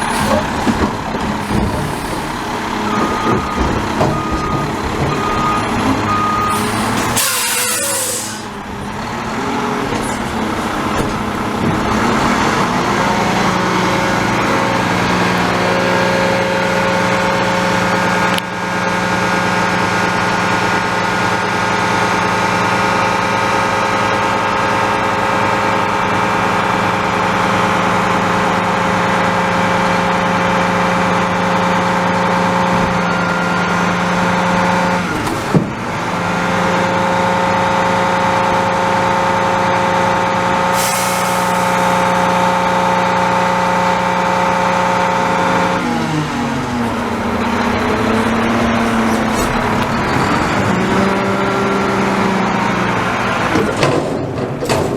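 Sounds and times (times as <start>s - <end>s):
garbage truck diesel engine: 0.0s - 54.9s
air hiss: 40.7s - 42.6s.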